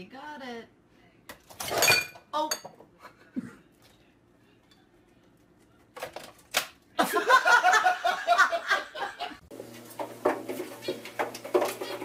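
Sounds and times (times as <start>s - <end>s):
people laughing: 7.0s - 9.4s.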